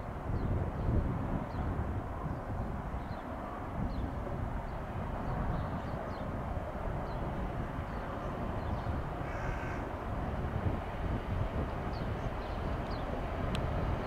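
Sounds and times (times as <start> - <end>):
distant freight train rumble: 0.0 - 14.0
crow cawing: 9.2 - 9.9.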